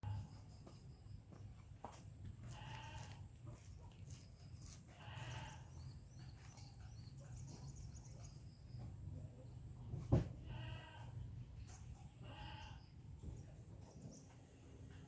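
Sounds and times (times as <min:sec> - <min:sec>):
bleating animal calls: 0:04.9 - 0:05.8, 0:10.4 - 0:11.2, 0:12.2 - 0:12.9.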